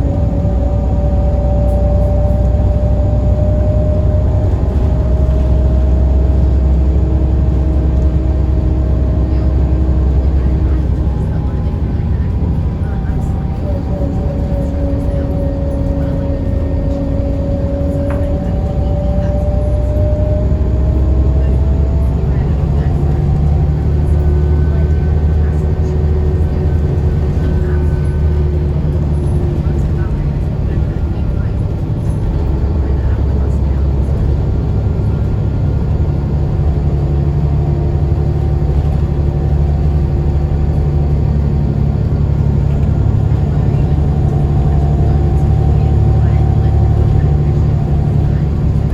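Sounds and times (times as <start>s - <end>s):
bus diesel engine rumbling: 0.0s - 48.9s
low hum: 0.0s - 48.9s.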